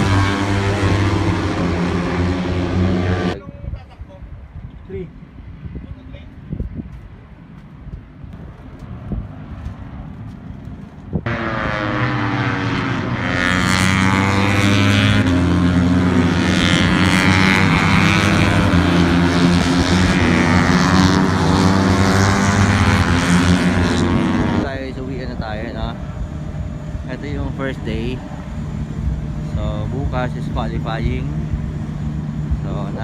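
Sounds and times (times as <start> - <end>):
aircraft engine drone: 0.0 - 3.4, 7.2 - 33.0
faint outdoor background: 0.0 - 11.7.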